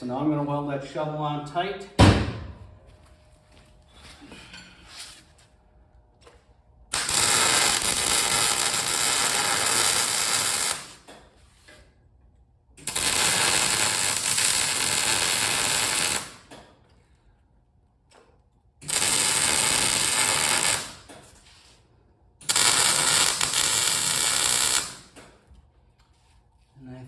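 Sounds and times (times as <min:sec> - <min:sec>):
welder arc crackling: 0:06.9 - 0:11.0, 0:12.8 - 0:16.4, 0:18.8 - 0:21.1, 0:22.4 - 0:25.2.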